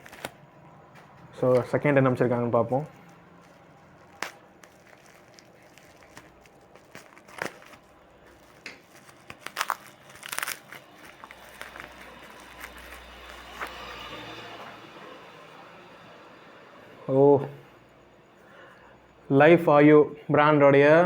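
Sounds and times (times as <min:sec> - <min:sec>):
packaging crinkling: 0:00.0 - 0:00.4, 0:01.5 - 0:14.7.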